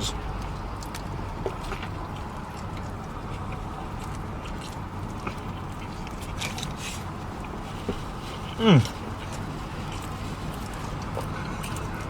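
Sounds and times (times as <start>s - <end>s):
person chewing close up: 0.1s - 12.0s.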